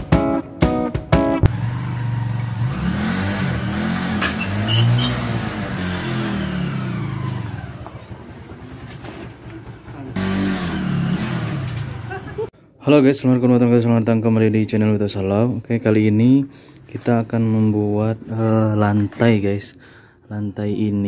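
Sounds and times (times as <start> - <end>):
small motorcycle engine revving: 1.5 - 12.5.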